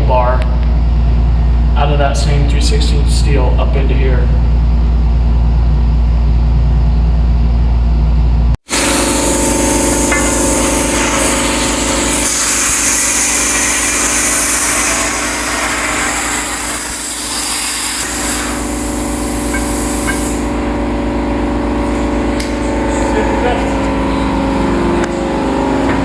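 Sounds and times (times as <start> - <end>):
machine humming: 0.0 - 26.0
loud hiss: 8.6 - 20.6.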